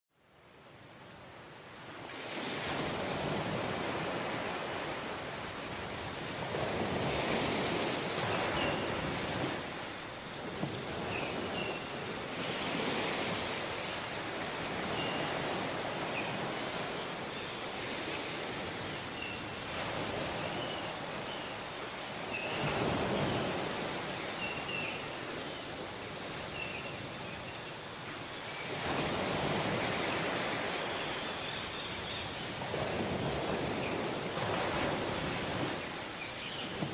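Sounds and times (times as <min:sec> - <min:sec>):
ocean waves breaking: 0:01.6 - 0:27.2, 0:32.4 - 0:36.9.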